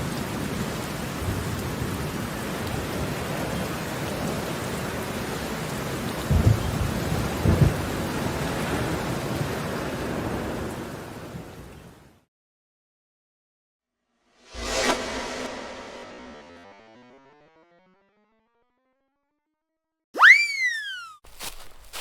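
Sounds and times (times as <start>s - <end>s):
steady rain: 0.0s - 12.2s
low thunder rumbles: 6.2s - 9.4s.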